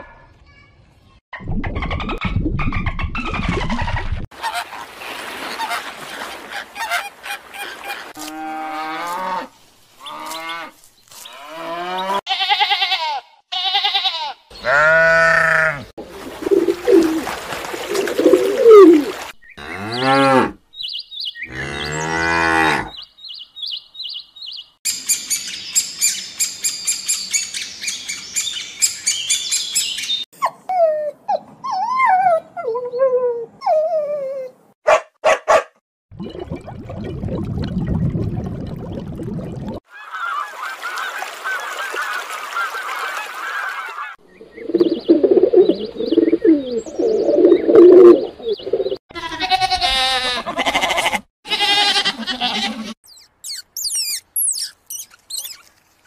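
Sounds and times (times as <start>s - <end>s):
high bird twittering: 53.1s - 55.7s
whale whistles and squeals: 53.1s - 55.7s.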